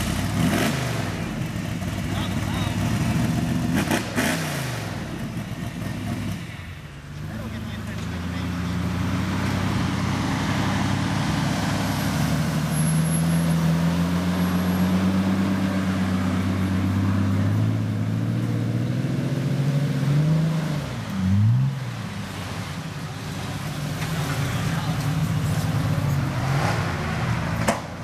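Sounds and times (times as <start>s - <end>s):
engine revving: 0.0s - 6.5s, 23.8s - 27.9s.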